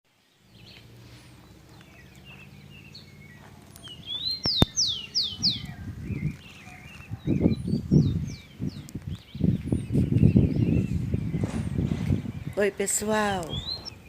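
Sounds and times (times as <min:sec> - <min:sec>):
songbirds chirping: 0:00.1 - 0:14.0
sharp click: 0:04.4 - 0:04.8
low thumps: 0:07.8 - 0:12.6.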